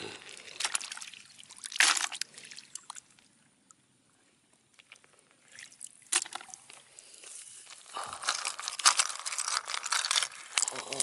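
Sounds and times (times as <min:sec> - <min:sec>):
water dripping and trickling: 0:00.2 - 0:03.8.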